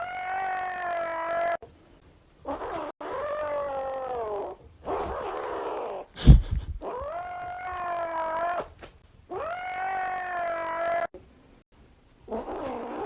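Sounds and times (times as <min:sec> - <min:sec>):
animal howling: 0:09.3 - 0:11.1.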